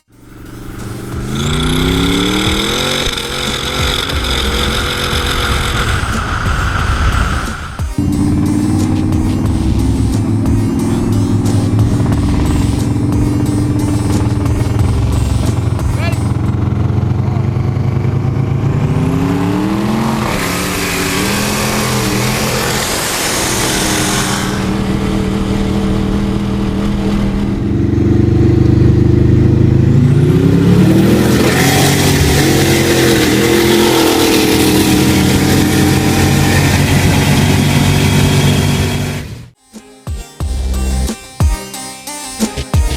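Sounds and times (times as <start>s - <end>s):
drag car engines at full throttle: 0.0s - 39.6s
rushing hiss: 0.1s - 15.8s.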